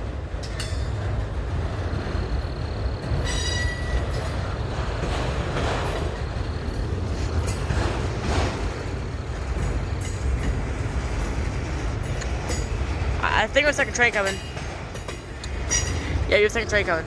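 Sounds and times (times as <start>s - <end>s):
freight train rumbling past: 0.0s - 17.0s
high wheel squeal: 2.5s - 4.6s.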